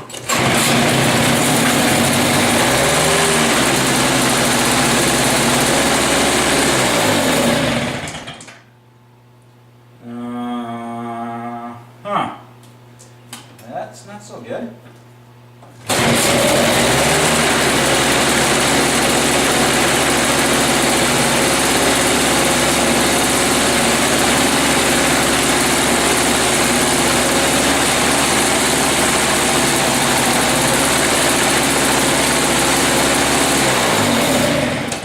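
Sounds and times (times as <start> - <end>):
snowblower engine idling: 0.1 - 8.4, 15.9 - 35.0.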